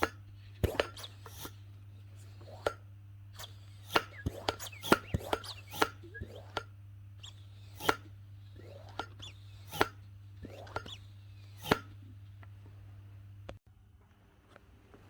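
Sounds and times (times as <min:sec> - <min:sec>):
short squeaks: 0:00.0 - 0:02.8, 0:03.4 - 0:12.4
steady low hum: 0:00.0 - 0:13.6.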